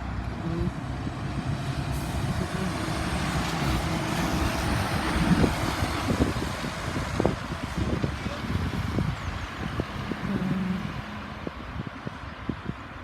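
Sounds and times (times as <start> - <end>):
truck driving past: 0.7 - 7.6.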